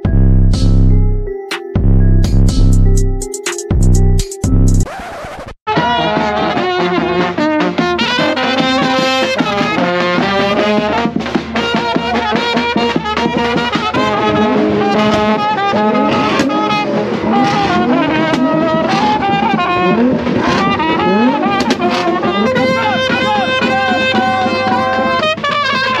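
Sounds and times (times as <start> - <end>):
held low note: 0.0 - 4.8
brass band playing lively melody: 5.7 - 26.0.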